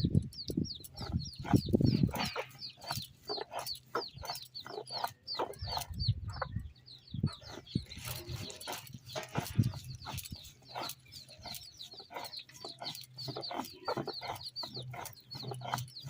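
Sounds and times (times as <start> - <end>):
chicks peeping: 0.0 - 16.0
knocks and rustling: 7.4 - 16.0.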